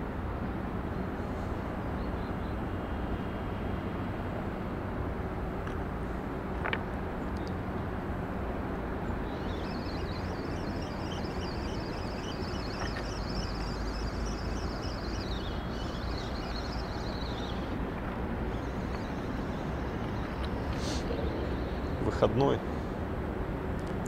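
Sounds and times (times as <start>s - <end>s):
distant traffic rumble: 0.0s - 24.0s
bird twittering song: 9.0s - 17.8s, 18.4s - 22.6s.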